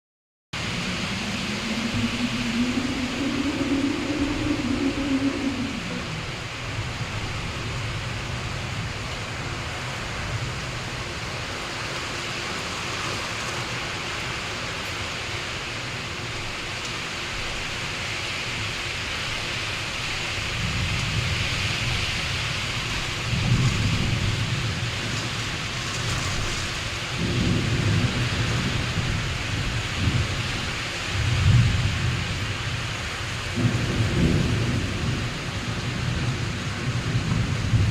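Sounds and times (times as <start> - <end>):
low hum sliding down: 0.6 - 7.0
low rumbles of thunder: 0.6 - 9.0, 20.4 - 37.9
rain with wind: 0.6 - 37.9.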